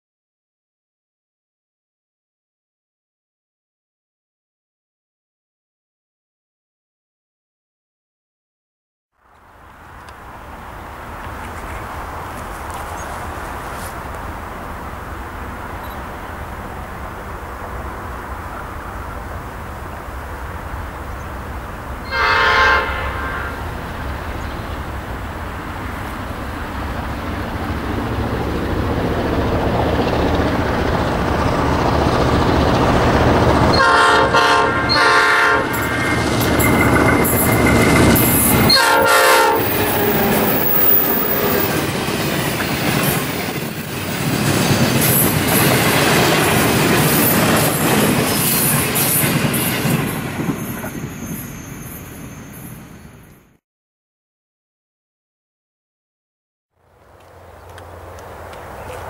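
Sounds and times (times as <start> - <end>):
diesel locomotive engines rumbling: 9.2 - 53.6, 56.8 - 59.0
locomotive horn: 22.0 - 23.8, 33.7 - 36.2, 38.4 - 40.6
train wheels clattering on rail joints: 39.5 - 51.6.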